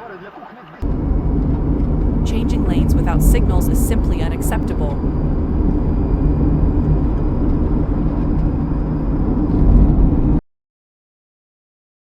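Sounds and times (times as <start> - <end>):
car road and engine noise: 0.8 - 10.4.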